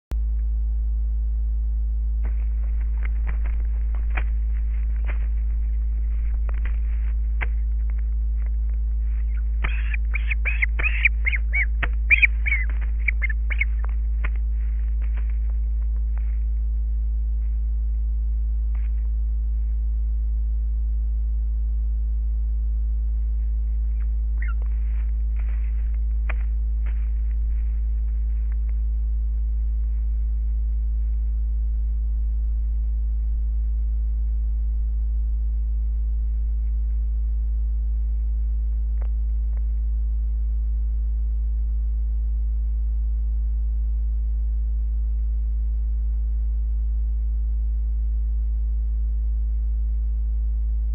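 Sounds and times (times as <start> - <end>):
low electrical hum: 0.1 - 50.9
faint high chirps: 9.2 - 13.9, 24.0 - 24.7.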